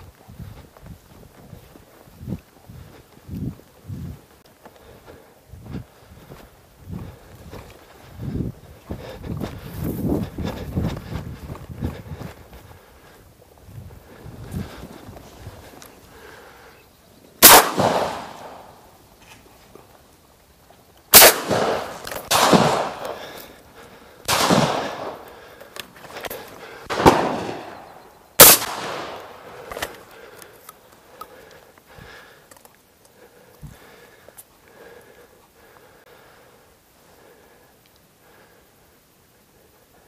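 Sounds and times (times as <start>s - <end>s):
shotgun shots with echo: 17.4s - 18.6s, 21.1s - 23.2s, 24.3s - 25.2s, 26.9s - 27.8s, 28.4s - 29.4s.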